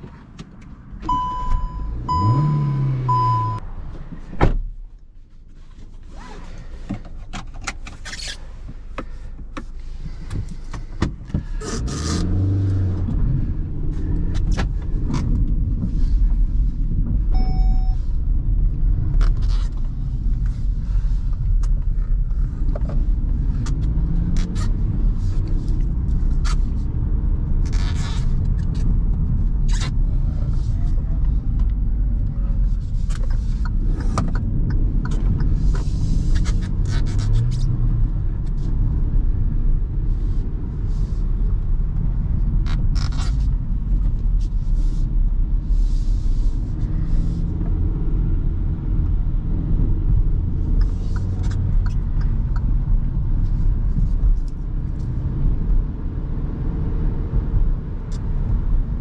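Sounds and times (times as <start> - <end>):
car engine: 0.0 - 59.0
car door shutting: 1.0 - 4.7
dashboard chime beeping: 1.1 - 3.6, 17.4 - 18.0.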